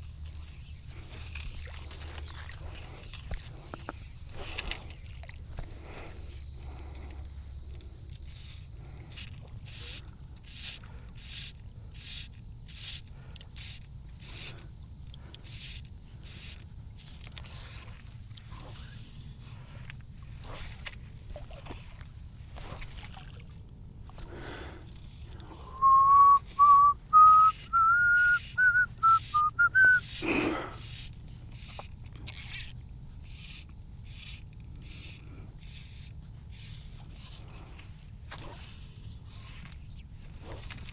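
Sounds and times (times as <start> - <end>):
insects chirring: 0.0 - 40.9
person whistling rising notes: 25.7 - 30.0.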